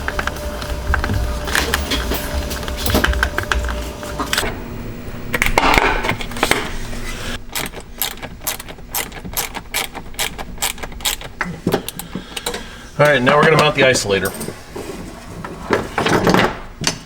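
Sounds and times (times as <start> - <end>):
ratchet wrench clicking: 7.5 - 12.6.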